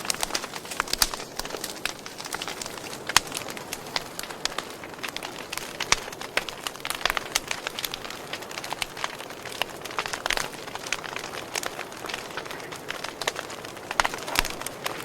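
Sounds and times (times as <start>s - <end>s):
sharp pops and snaps: 0.0s - 15.0s
wood fire crackling: 0.0s - 15.0s.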